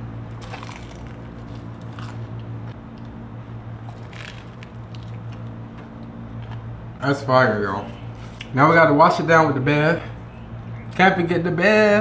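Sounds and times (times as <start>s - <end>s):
steady low hum: 0.0s - 12.0s
crisp crackles of coating: 0.3s - 2.4s, 3.8s - 5.5s
crunchy food bitten and chewed: 0.3s - 3.1s, 3.8s - 6.6s.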